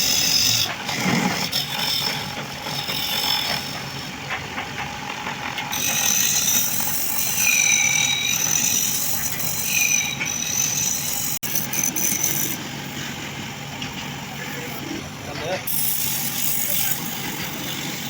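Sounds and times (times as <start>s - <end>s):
wood lathe whining hum: 0.0s - 4.2s, 5.6s - 18.0s.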